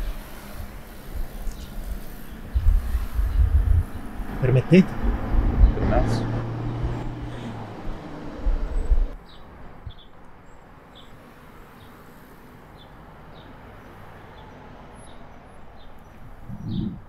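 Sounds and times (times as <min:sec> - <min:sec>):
small bird chirping: 0:12.7 - 0:17.0
brief low rumble: 0:16.5 - 0:17.0.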